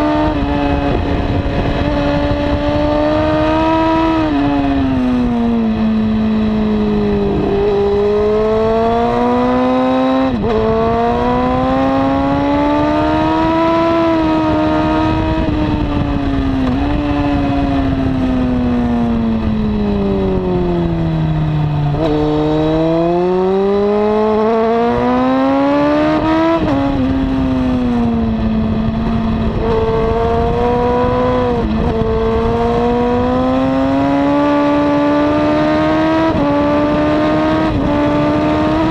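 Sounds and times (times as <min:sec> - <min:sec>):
wind rushing: 0:00.0 - 0:06.0, 0:25.9 - 0:34.2
motorcycle engine revving: 0:00.0 - 0:38.9.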